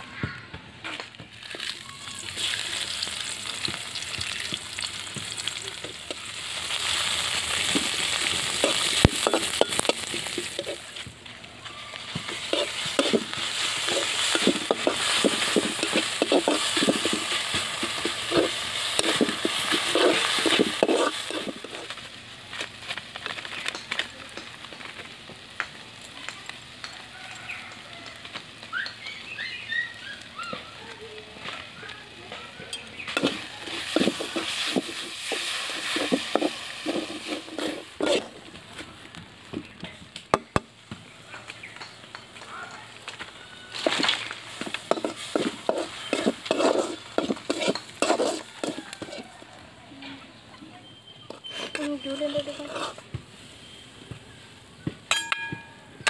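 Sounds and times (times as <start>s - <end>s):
onions sizzling in oil: 0.9s - 49.7s, 51.2s - 55.1s
utensil scraping pan: 7.5s - 11.0s, 12.1s - 22.0s, 32.8s - 38.4s, 43.8s - 49.4s, 51.2s - 53.1s.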